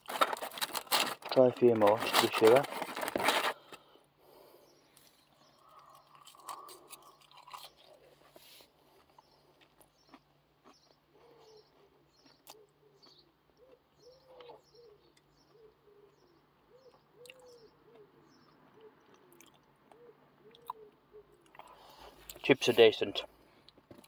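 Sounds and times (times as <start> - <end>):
high bird chirps: 10.0 - 21.5
bird cooing: 12.6 - 22.0.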